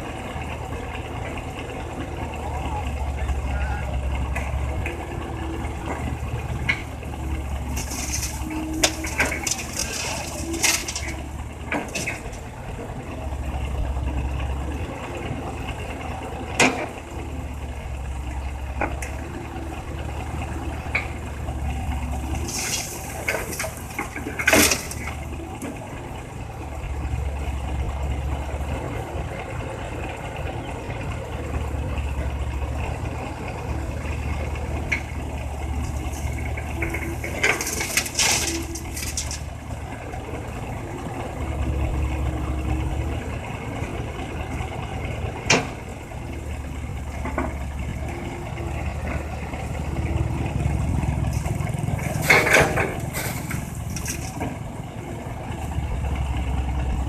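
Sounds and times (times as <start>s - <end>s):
excavator diesel engine droning: 0.0s - 57.0s
metal clanks: 7.6s - 12.5s, 22.4s - 25.7s, 35.8s - 39.5s, 51.3s - 54.6s.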